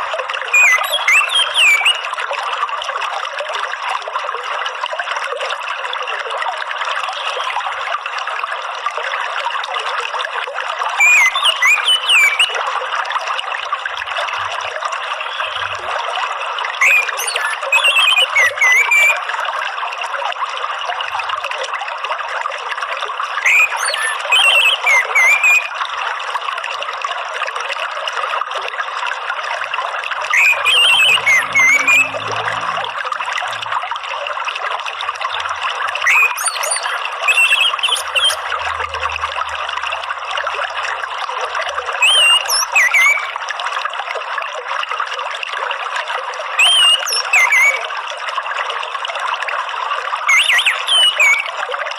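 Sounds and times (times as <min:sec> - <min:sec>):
water trickling: 0:00.0 - 0:51.9
thrush twittering song: 0:00.5 - 0:02.1, 0:11.0 - 0:12.6, 0:15.2 - 0:16.0, 0:16.8 - 0:19.2, 0:23.4 - 0:25.7, 0:30.3 - 0:33.7, 0:35.3 - 0:40.4, 0:42.0 - 0:43.4, 0:46.6 - 0:47.8, 0:50.3 - 0:51.6.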